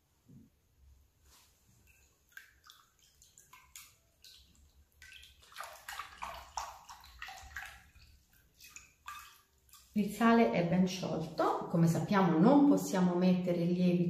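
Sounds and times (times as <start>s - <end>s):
water splashing in a bowl: 1.8s - 10.4s.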